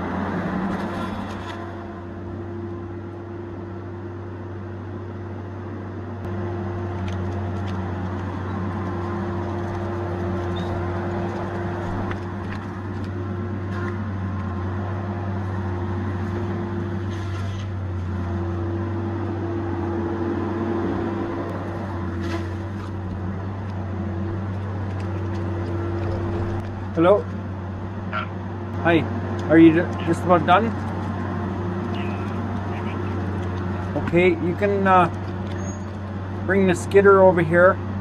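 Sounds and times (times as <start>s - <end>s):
diesel engine droning: 0.0s - 38.0s.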